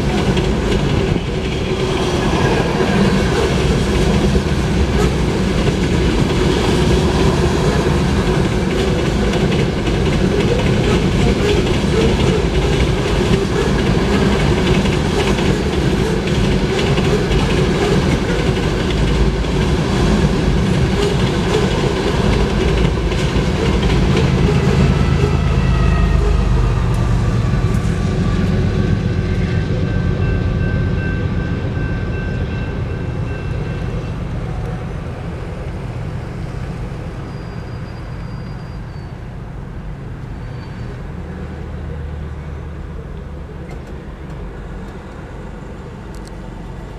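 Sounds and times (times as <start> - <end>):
wheels clicking over rail joints: 0.0 - 25.4
freight train rumbling past: 0.0 - 46.9.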